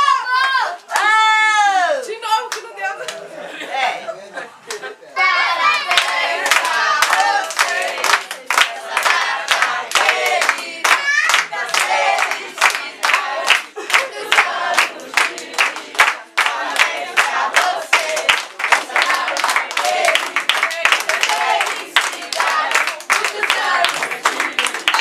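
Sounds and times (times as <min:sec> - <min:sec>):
rhythmic hand-clapping: 0:02.5 - 0:03.2, 0:05.5 - 0:25.0
group of voices singing: 0:05.2 - 0:25.0.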